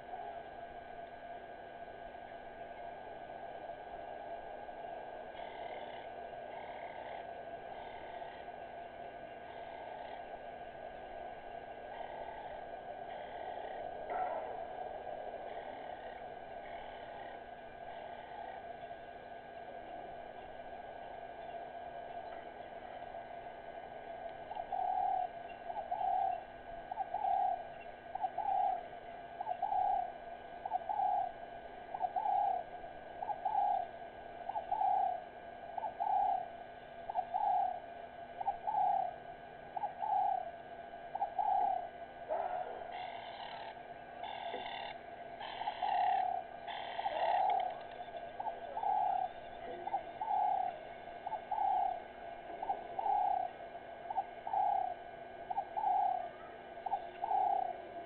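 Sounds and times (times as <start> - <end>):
bird hooting: 1.9 - 58.0
harsh bird calls: 41.1 - 58.0.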